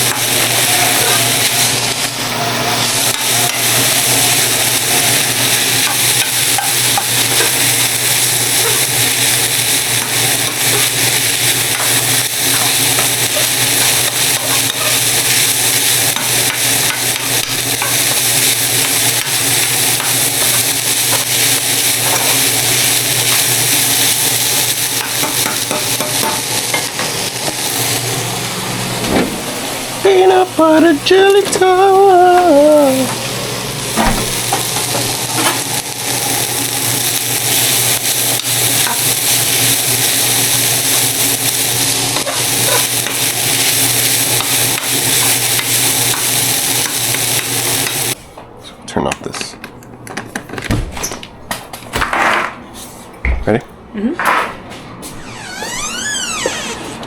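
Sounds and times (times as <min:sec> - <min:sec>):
meat sizzling in a pan: 0:00.0 - 0:28.8, 0:32.9 - 0:48.2.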